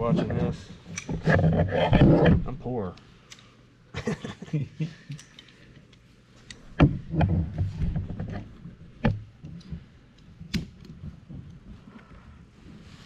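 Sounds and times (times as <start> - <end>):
low rubbing and shuffling: 10.9 - 13.0.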